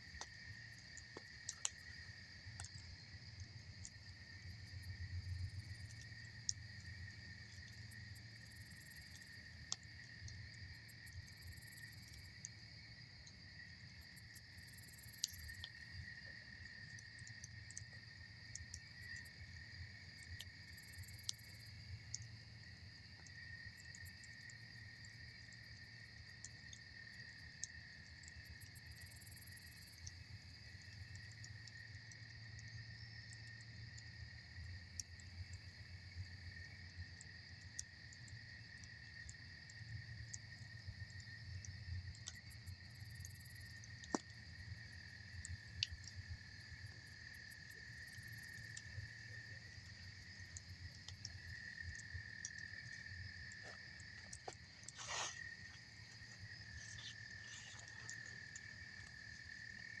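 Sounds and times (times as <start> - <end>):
campfire crackling and popping: 0.0 - 12.5, 37.0 - 60.0
high insect chorus: 0.0 - 60.0.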